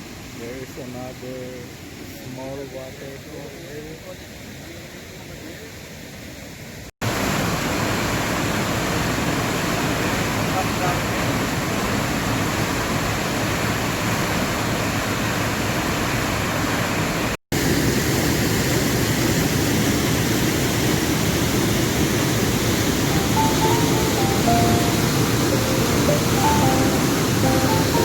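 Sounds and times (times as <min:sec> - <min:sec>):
river water rushing: 0:21.2 - 0:28.0.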